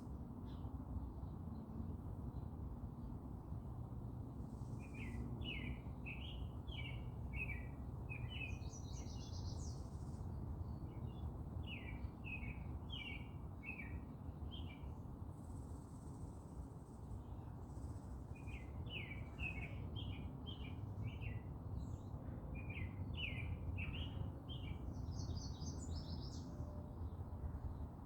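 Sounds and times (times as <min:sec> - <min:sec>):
songbird singing: 0:04.8 - 0:15.0, 0:17.8 - 0:27.8.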